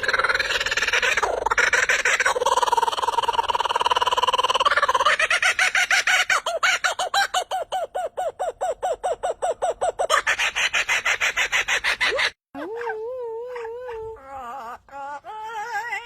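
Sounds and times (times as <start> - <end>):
bird trilling and calling: 0.0 - 12.4.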